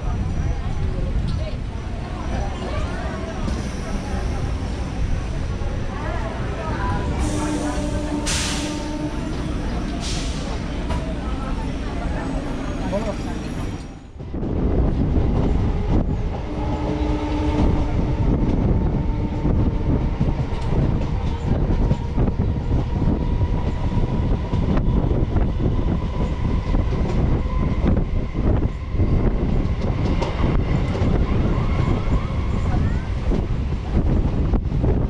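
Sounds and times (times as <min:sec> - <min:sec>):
train rumble and rushing air: 0:00.0 - 0:35.0
train horn: 0:06.9 - 0:10.0, 0:16.4 - 0:20.2.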